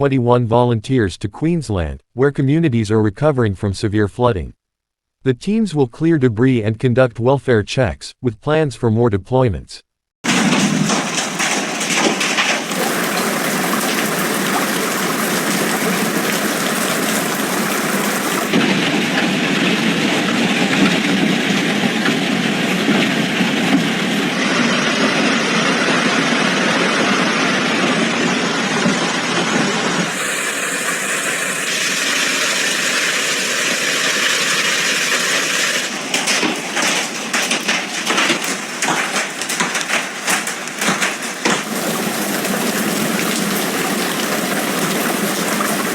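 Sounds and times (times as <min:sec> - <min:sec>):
rushing storm water: 0:10.2 - 0:27.8, 0:29.9 - 0:45.9
heavy rain: 0:10.2 - 0:45.9
rapid knocks or buffeting: 0:35.9 - 0:45.9.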